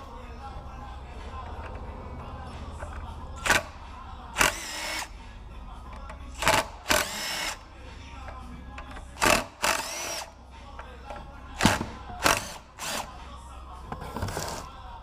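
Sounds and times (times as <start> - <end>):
power drill whining: 6.9 - 7.6, 9.2 - 10.3, 12.2 - 13.1.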